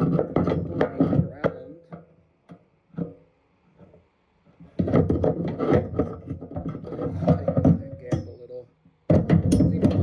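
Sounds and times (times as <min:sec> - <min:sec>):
scraping and rubbing: 0:00.0 - 0:01.9, 0:03.0 - 0:08.5.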